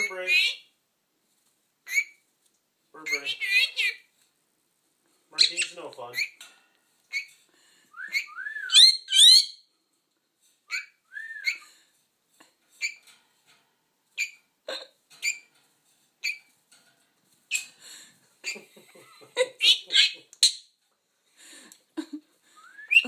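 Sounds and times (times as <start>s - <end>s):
parrot chirps: 1.8s - 2.2s, 3.0s - 4.1s, 5.4s - 6.4s, 7.1s - 7.4s, 8.0s - 9.7s, 10.7s - 11.7s, 12.8s - 13.0s, 14.2s - 14.5s, 15.2s - 15.5s, 16.2s - 16.5s, 17.5s - 17.8s
parrot whistling: 8.0s - 9.6s, 10.7s - 11.6s, 22.6s - 23.0s.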